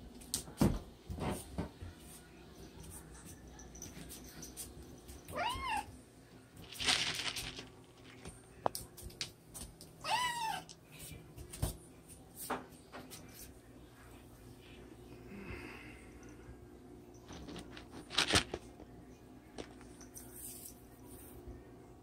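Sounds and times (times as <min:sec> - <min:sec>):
cat meowing: 0:05.3 - 0:05.9, 0:10.0 - 0:10.7.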